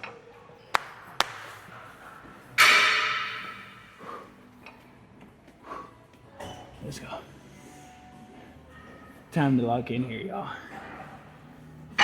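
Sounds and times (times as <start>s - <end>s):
metallic clang of gym weights: 2.6s - 4.0s.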